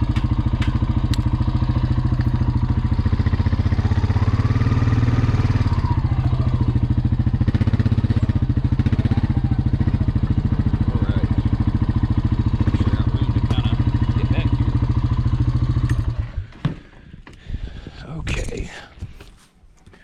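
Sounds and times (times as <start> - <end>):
combustion engine running: 0.0 - 16.6.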